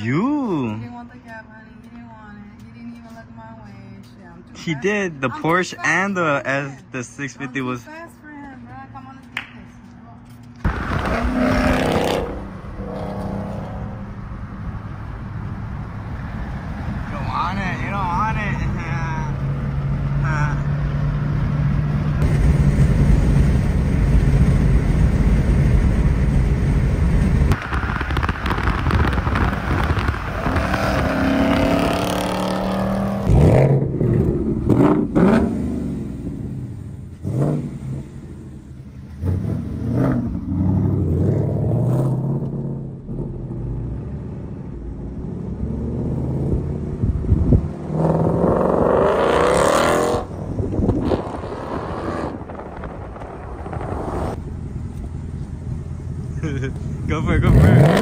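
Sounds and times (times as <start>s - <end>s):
car interior engine and road drone: 0.0s - 58.0s
car engine revving: 10.6s - 58.0s
car accelerating loudly: 10.7s - 14.2s, 26.9s - 38.5s, 39.1s - 54.4s, 57.3s - 58.0s.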